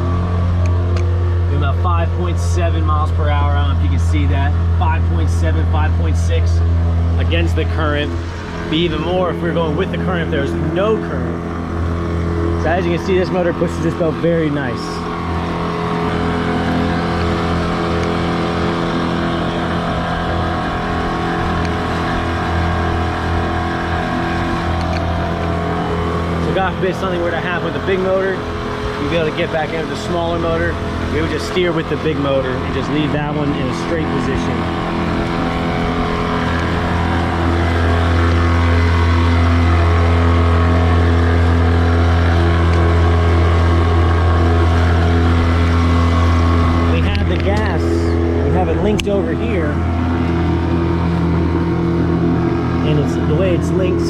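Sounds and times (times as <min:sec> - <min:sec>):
outboard motor running: 0:00.0 - 0:54.0.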